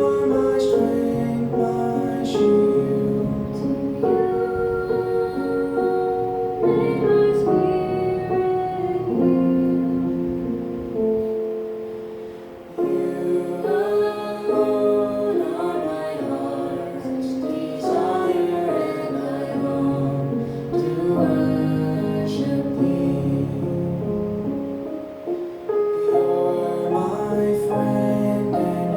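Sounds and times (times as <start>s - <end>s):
woman singing: 0.0s - 10.2s, 12.8s - 23.9s
piano accompaniment: 0.0s - 28.9s.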